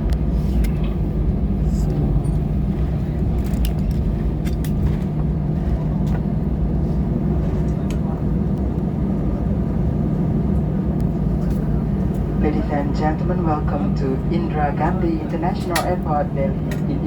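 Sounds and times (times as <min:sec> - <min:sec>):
aircraft engines idling rumble: 0:00.0 - 0:17.0
light clicks and rattles: 0:03.4 - 0:05.0.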